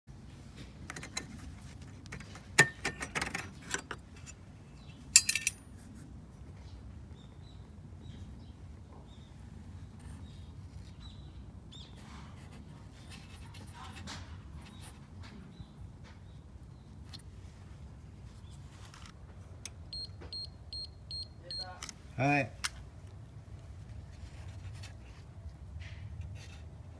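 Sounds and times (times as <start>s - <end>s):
metallic clinking and rattling: 2.1s - 5.7s.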